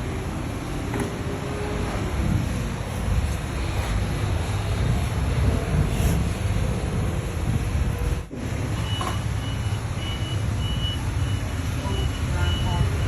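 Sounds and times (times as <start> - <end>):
heavy machine engine rumbling: 0.0 - 13.0
backup alarm beeping: 8.7 - 13.0.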